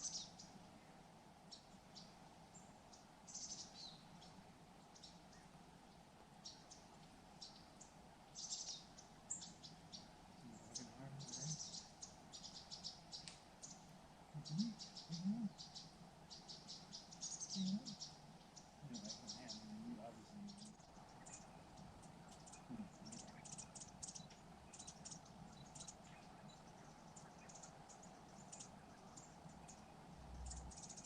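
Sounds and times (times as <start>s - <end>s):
small birds chirping: 0.0s - 31.0s
faint low sounds: 9.0s - 16.5s, 17.4s - 31.0s.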